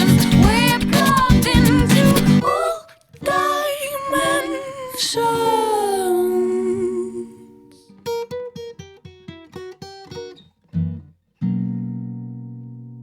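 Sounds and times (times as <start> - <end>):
acoustic guitar notes and chord: 0.0 - 2.6, 4.2 - 13.0
person singing: 0.0 - 7.9.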